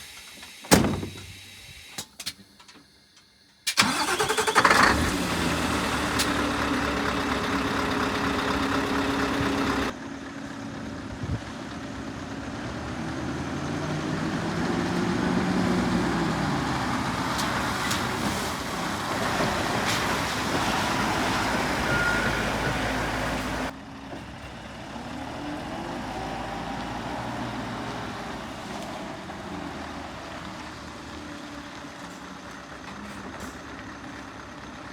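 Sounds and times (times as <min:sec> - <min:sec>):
engine starting and running: 0:00.0 - 0:10.3.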